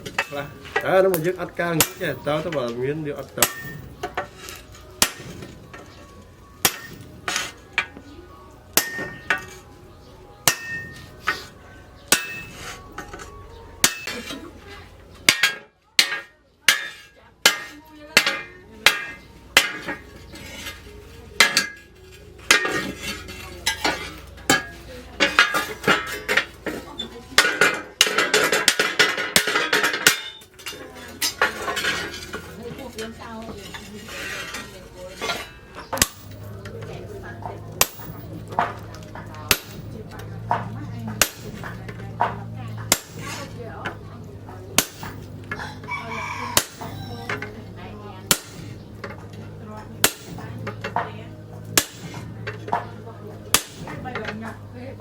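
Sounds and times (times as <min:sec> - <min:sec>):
hammer striking metal: 0:03.4 - 0:05.9, 0:06.6 - 0:07.9, 0:08.7 - 0:09.6, 0:10.4 - 0:11.5, 0:12.1 - 0:14.4, 0:15.2 - 0:20.8, 0:21.4 - 0:26.8, 0:27.4 - 0:32.5, 0:35.2 - 0:36.8, 0:37.8 - 0:44.0, 0:44.7 - 0:45.6, 0:46.6 - 0:47.5, 0:48.2 - 0:49.2, 0:50.0 - 0:54.3.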